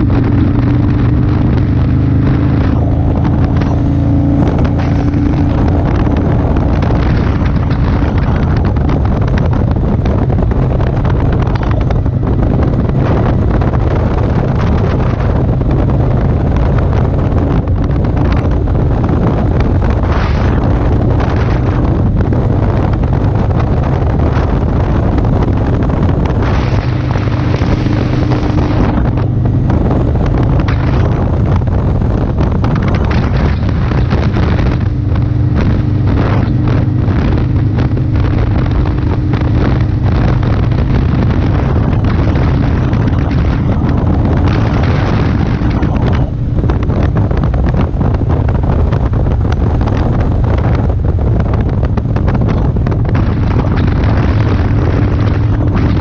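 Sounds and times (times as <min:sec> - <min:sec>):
motorcycle engine running: 0:00.0 - 0:56.0
wind buffeting microphone: 0:00.0 - 0:56.0.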